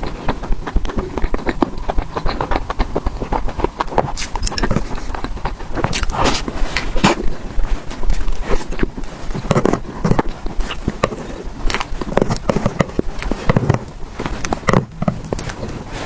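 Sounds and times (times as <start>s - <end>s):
wet chewing and lip smacks: 0.0s - 16.0s.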